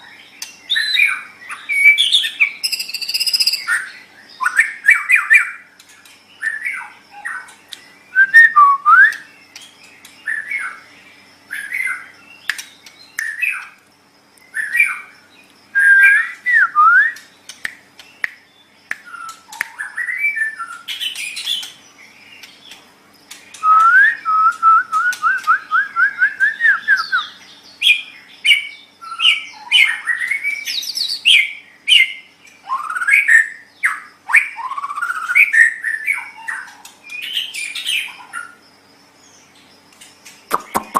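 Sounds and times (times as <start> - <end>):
faint steady hum: 0.0 - 40.9
bird singing whistled phrases: 0.7 - 5.6, 8.1 - 9.4, 15.8 - 17.3, 19.0 - 21.7, 23.5 - 38.1.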